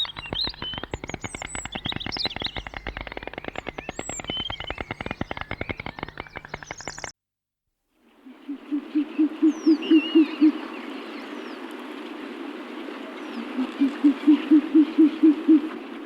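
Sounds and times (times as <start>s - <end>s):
small birds chirping: 0.0s - 7.1s
stork clattering its bill: 0.0s - 7.1s.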